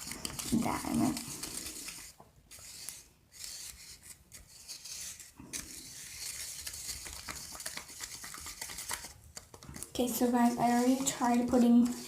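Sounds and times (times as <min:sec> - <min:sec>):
utensil scraping inside a container: 0:09.7 - 0:12.0.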